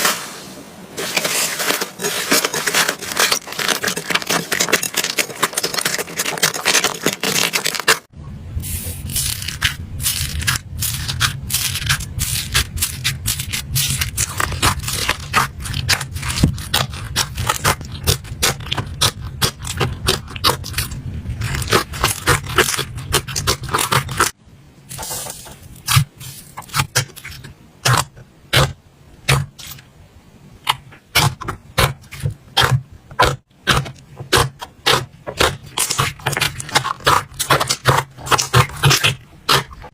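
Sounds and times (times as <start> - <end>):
slime crackling and popping: 1.3 - 8.1, 9.1 - 24.4, 33.7 - 39.9.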